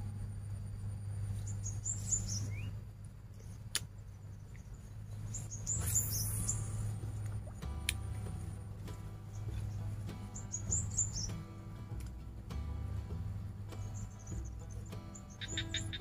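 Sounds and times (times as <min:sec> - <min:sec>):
low hum: 0:00.0 - 0:16.0
small birds chirping: 0:01.3 - 0:12.2, 0:13.5 - 0:16.0
fishing rod cast swish: 0:05.6 - 0:09.8.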